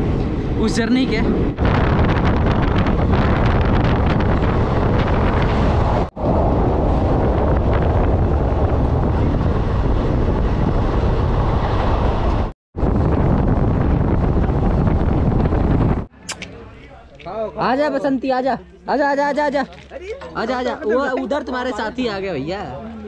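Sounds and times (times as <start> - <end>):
wind buffeting microphone: 0.0 - 16.1.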